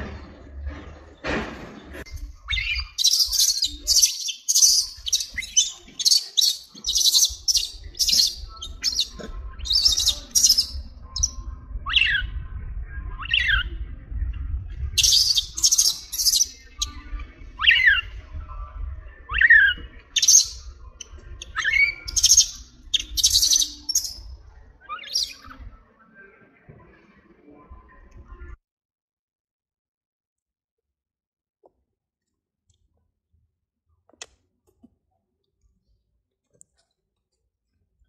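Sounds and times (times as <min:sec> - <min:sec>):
birds squawking harshly: 0:02.4 - 0:10.8, 0:15.0 - 0:16.9, 0:21.4 - 0:24.3.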